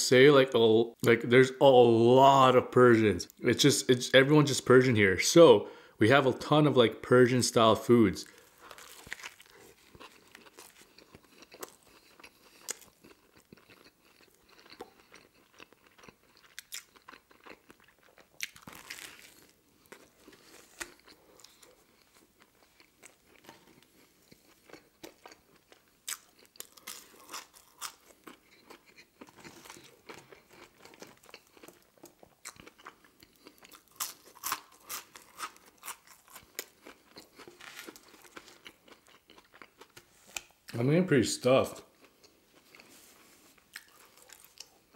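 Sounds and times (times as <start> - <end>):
chewing crusty sandwich: 8.2 - 40.8, 41.9 - 44.9.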